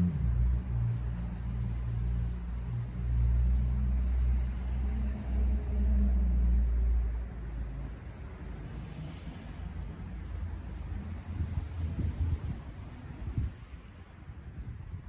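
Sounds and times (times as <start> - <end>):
road vehicle engine rumble: 0.0 - 15.0.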